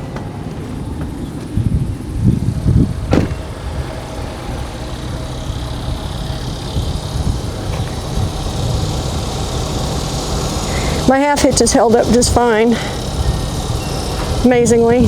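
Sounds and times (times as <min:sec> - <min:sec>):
vehicle engine running: 0:00.0 - 0:15.0
handling thumps: 0:03.0 - 0:04.0
sharp knock: 0:03.1 - 0:03.6.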